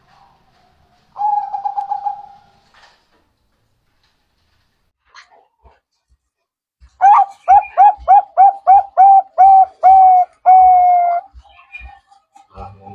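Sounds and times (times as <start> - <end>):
dove cooing: 1.2 - 2.6, 6.9 - 12.0.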